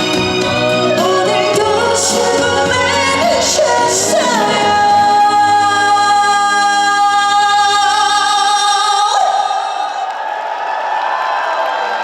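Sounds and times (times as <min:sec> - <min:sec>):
band accompaniment: 0:00.0 - 0:07.0
woman singing a long note: 0:00.7 - 0:09.4.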